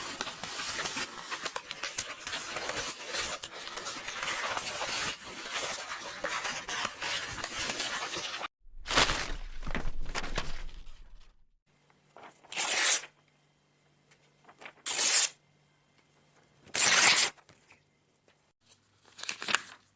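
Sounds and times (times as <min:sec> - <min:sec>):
paper rustling: 0:00.0 - 0:11.4, 0:18.6 - 0:19.9
paper tearing: 0:12.4 - 0:13.1, 0:14.8 - 0:15.3, 0:16.7 - 0:17.4.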